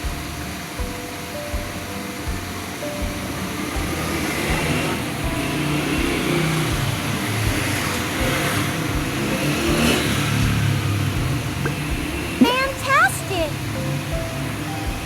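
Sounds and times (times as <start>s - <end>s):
vehicle engine revving: 3.2s - 12.5s.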